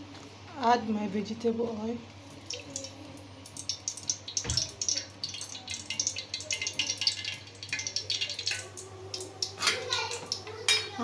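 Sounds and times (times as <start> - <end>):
hot oil crackling and spattering: 2.2 - 10.9.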